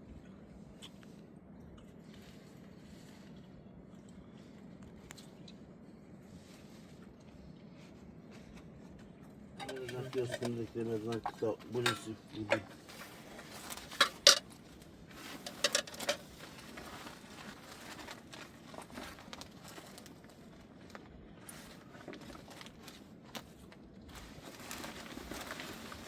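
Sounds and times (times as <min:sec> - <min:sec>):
faint rustling and shuffling: 0:00.0 - 0:26.0
objects clicking and knocking: 0:09.6 - 0:14.6, 0:15.3 - 0:16.3.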